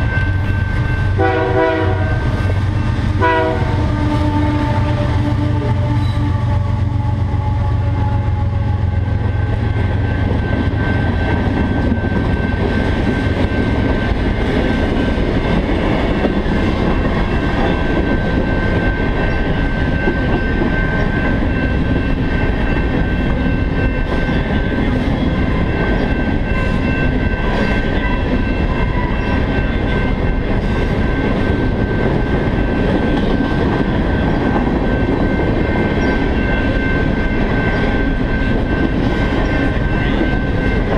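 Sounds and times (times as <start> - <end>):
train horn: 0.0 - 9.5
locomotive engine drone: 0.0 - 40.9
wheels rumbling on rail: 0.0 - 40.9
wheels clickety-clack: 9.2 - 40.9.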